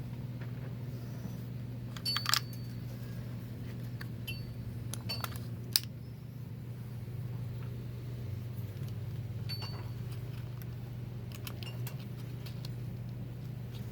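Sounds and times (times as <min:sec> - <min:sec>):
steady low hum: 0:00.0 - 0:13.9
metal parts clinking: 0:01.9 - 0:02.8, 0:04.9 - 0:05.9, 0:11.3 - 0:12.8.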